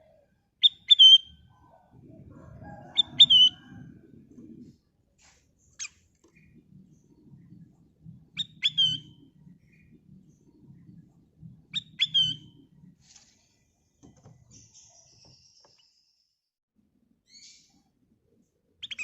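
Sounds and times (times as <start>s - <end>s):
low rumble: 1.6s - 5.0s.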